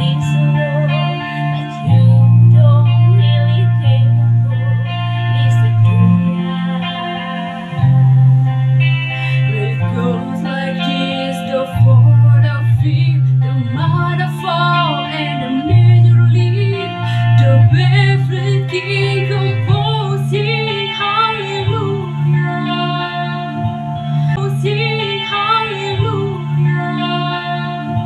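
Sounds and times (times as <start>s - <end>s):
guitar accompaniment: 0.0s - 28.0s
held bass notes: 0.0s - 28.0s
people singing: 24.3s - 28.0s.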